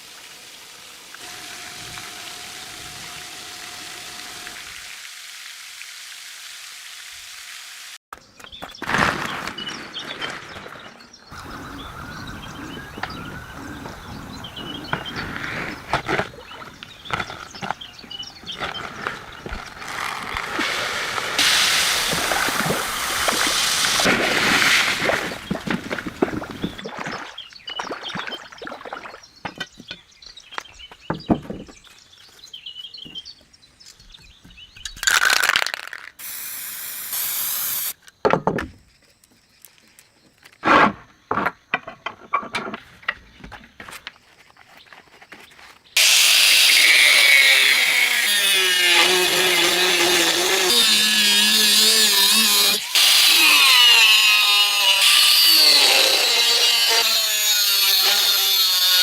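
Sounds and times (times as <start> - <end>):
power tool grinding steel: 1.2 - 4.9, 19.7 - 24.1, 46.0 - 59.0.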